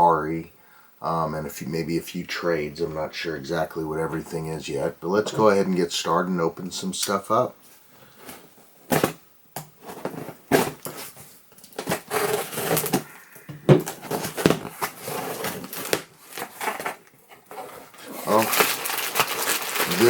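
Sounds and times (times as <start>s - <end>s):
packaging tearing and crinkling: 9.8s - 20.0s.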